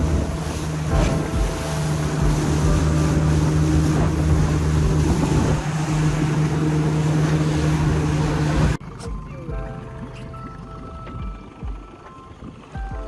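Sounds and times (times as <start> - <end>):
wind on microphone: 0.0 - 8.8
boat motor running: 0.0 - 13.0
water noise: 0.0 - 13.0.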